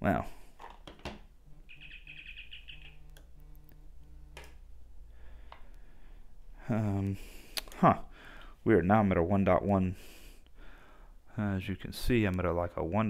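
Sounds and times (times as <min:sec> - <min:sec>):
bird chirping trill: 0:01.6 - 0:03.2.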